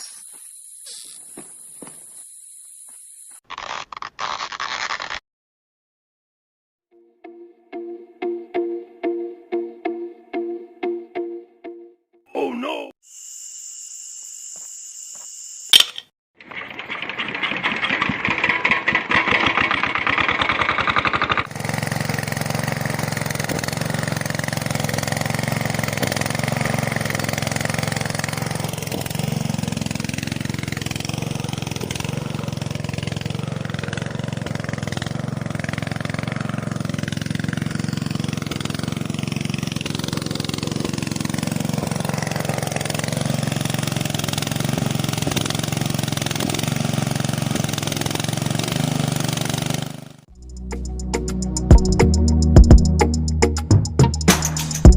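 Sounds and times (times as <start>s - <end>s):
sharp click: 15.7s - 16.1s
diesel engine cranking and running: 16.4s - 54.9s.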